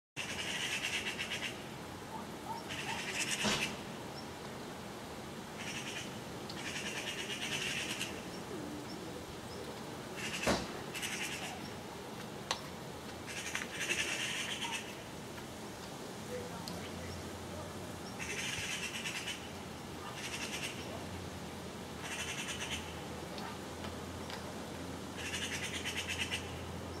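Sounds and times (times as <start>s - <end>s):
magpies chattering: 0.2s - 3.8s, 5.6s - 11.8s, 13.3s - 15.0s, 18.0s - 21.0s, 22.0s - 23.0s, 25.2s - 26.5s.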